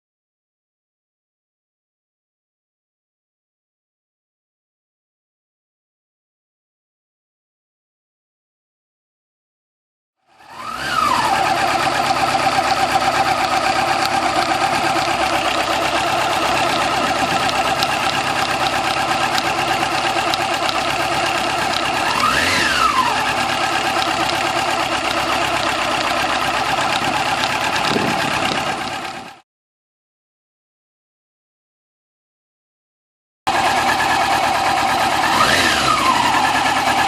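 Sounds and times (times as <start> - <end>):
motorcycle engine idling: 10.3 - 29.4, 33.5 - 37.0
motorcycle engine revving: 10.3 - 29.4, 33.5 - 37.0.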